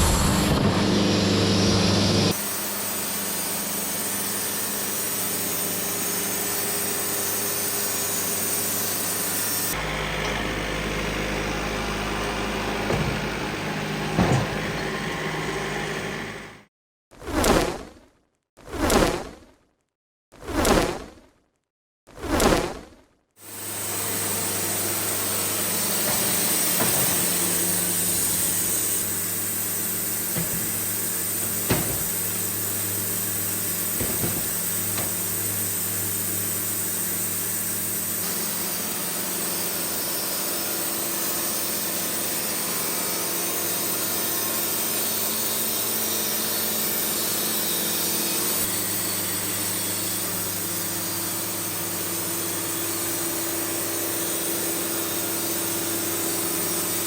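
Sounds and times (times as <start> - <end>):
band sawmill sawing log: 0.0 - 16.6, 23.5 - 57.0
sharp knocks: 30.4 - 32.4, 34.0 - 35.3.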